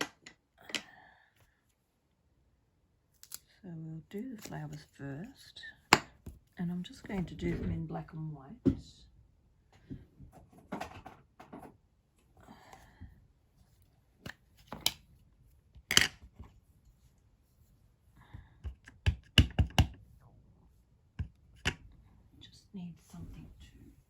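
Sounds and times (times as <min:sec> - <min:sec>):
stamps tapping on a table: 0:18.6 - 0:20.0.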